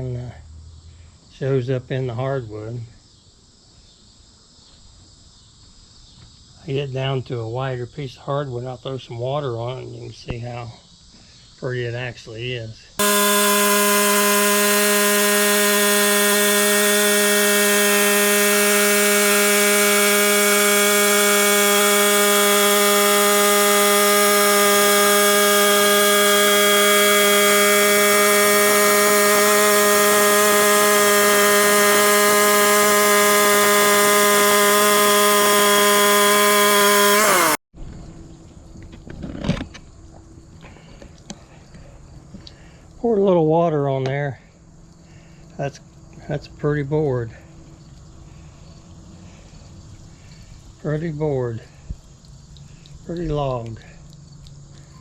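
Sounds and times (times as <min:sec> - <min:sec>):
band blade cutting log: 0:13.0 - 0:37.6
sawmill engine running: 0:13.0 - 0:37.6.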